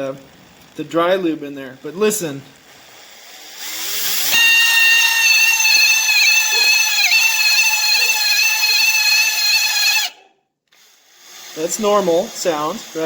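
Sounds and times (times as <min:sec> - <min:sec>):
speedometer high-pitched squeal: 0:03.8 - 0:10.3.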